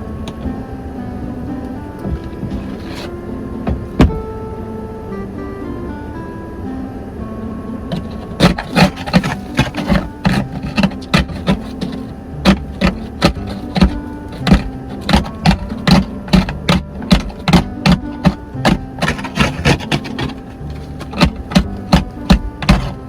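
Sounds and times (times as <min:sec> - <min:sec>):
background music: 0:00.0 - 0:23.0.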